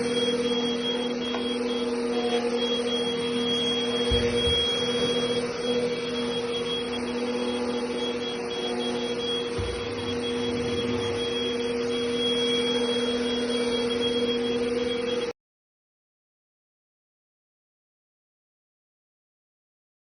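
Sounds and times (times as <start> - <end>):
handheld vacuum cleaner running: 0.0 - 15.3.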